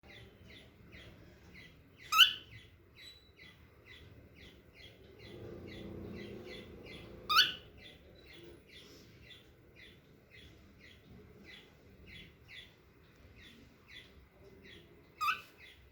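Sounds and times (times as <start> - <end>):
cockatiel chick peeping: 0.0 - 15.9.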